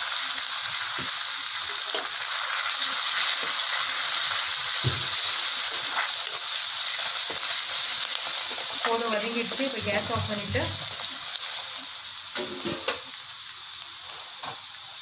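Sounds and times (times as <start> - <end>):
spices sizzling in hot fat: 0.0 - 15.0.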